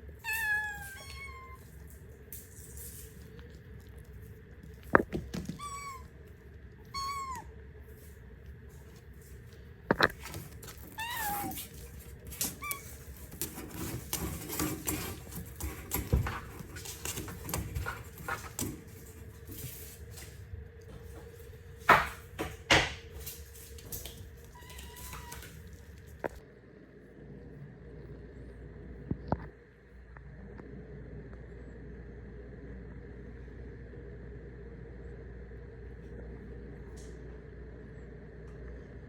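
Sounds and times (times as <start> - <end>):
cat mewing: 0.2 - 1.8, 5.5 - 6.2, 6.8 - 7.6, 10.9 - 11.8, 24.5 - 25.7.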